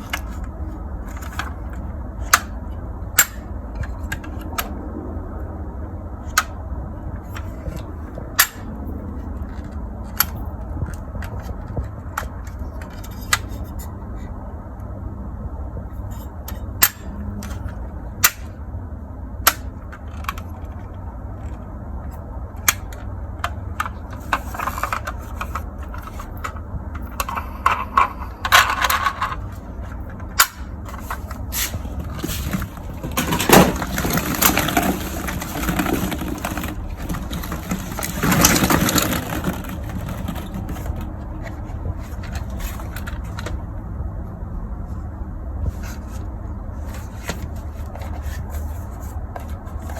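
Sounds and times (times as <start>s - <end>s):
plastic rustling and scraping: 0.0s - 4.7s, 7.1s - 14.4s, 19.6s - 43.8s, 44.8s - 49.9s
plastic toys clicking and knocking: 0.0s - 4.8s, 6.2s - 14.0s, 16.1s - 18.6s, 19.3s - 43.7s
steady low hum: 0.0s - 49.9s.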